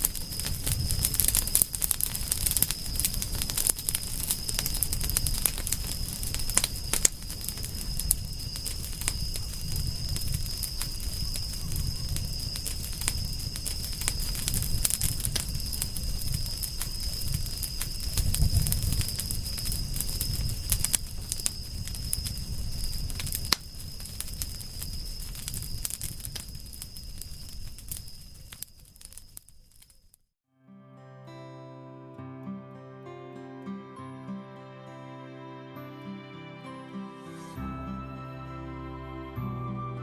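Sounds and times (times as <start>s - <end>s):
wood fire crackling and popping: 0.0s - 30.2s
steady high-pitched tone: 33.7s - 40.0s.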